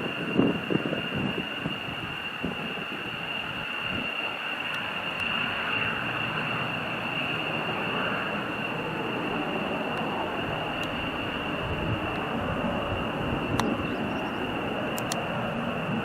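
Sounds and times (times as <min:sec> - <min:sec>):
wind on microphone: 0:00.0 - 0:04.2, 0:09.4 - 0:16.0
distant jet engine whine: 0:00.0 - 0:16.0.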